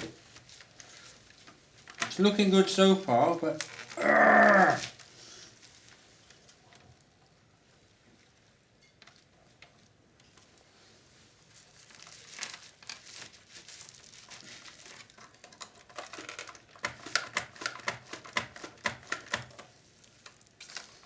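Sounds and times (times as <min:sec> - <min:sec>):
rustling and handling: 0:00.0 - 0:21.0
sharp plastic clicks and knocks: 0:15.6 - 0:19.7.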